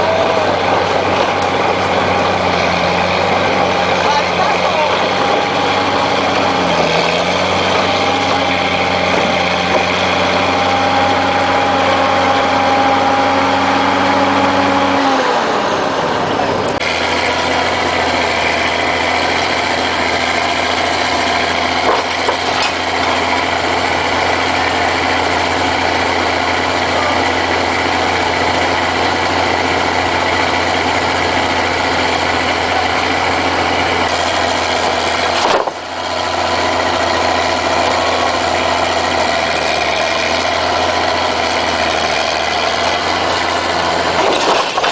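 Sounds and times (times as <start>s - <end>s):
heavy vehicle engines running: 0.0s - 44.9s.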